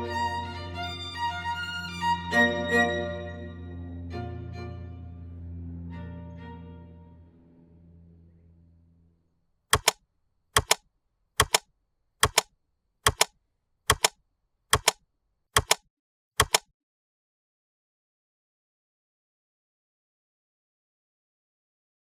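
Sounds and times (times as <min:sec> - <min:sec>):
background music: 0:00.0 - 0:07.5
sharp mechanical double clicks: 0:09.7 - 0:10.0, 0:10.6 - 0:10.8, 0:11.4 - 0:15.0, 0:15.6 - 0:15.8, 0:16.4 - 0:16.7.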